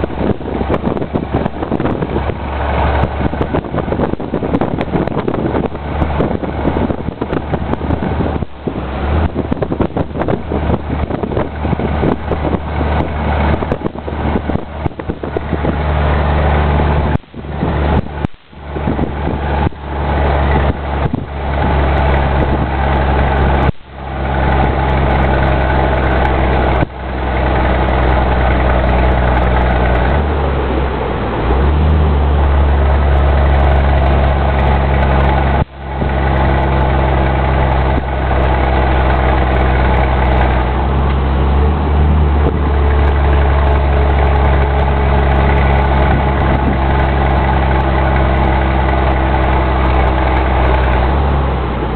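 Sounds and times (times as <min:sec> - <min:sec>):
truck diesel engine droning: 0:00.0 - 0:51.9.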